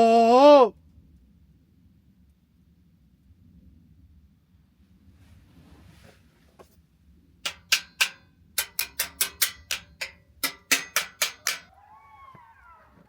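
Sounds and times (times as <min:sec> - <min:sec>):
sharp ringing knocks: 0:07.5 - 0:11.7
jackals howling: 0:11.7 - 0:13.0.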